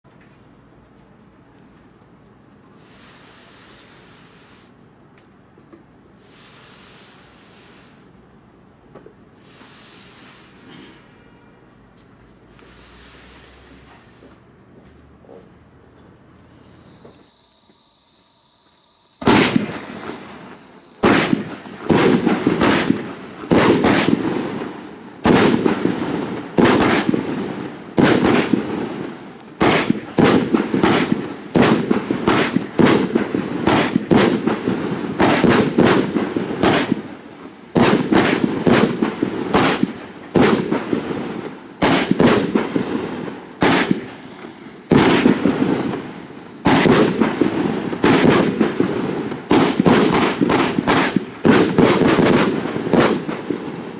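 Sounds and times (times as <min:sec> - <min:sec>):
fireworks cake firing bangs: 0:19.2 - 0:53.9.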